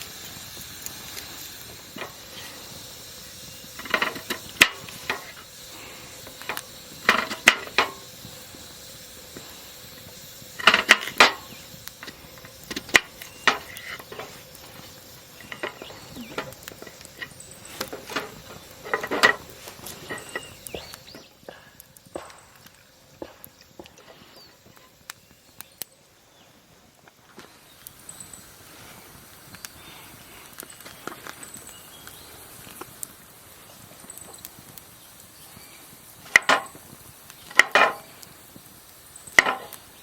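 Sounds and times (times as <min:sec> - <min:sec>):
food sizzling: 0:00.0 - 0:40.0
metal utensils clinking on a pan: 0:03.8 - 0:05.4, 0:07.0 - 0:08.0, 0:10.6 - 0:12.1, 0:15.4 - 0:20.6.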